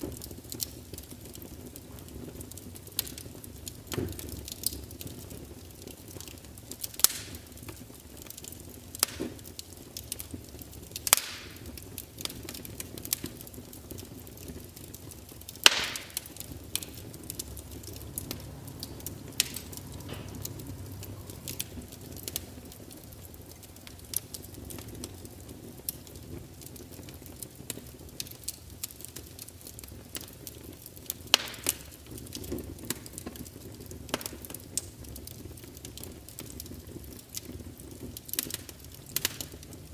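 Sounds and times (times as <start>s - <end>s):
wood fire crackling and popping: 0.0s - 39.9s
low hiss: 14.1s - 29.0s.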